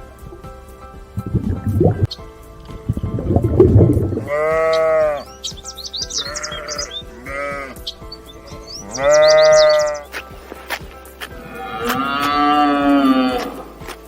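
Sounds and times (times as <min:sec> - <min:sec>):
sheep bleating: 0:04.2 - 0:05.3, 0:06.0 - 0:10.1, 0:11.4 - 0:13.8
quick high chirps: 0:05.2 - 0:07.2, 0:07.8 - 0:10.8.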